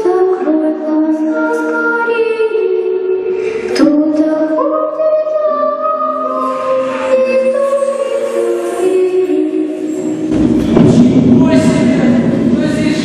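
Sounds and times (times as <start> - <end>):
choir singing long held notes: 6.0 - 10.6.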